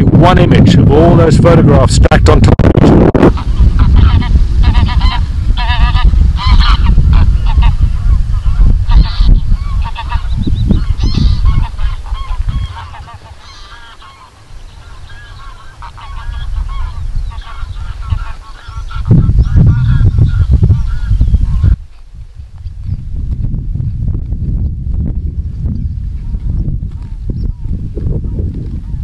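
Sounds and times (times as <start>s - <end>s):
wind rumble on microphone: 0.0s - 29.0s
geese honking: 3.2s - 21.8s.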